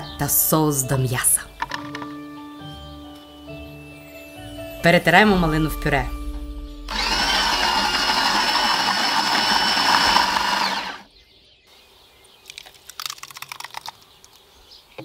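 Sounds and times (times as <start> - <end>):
electric blender running: 6.9 - 11.1.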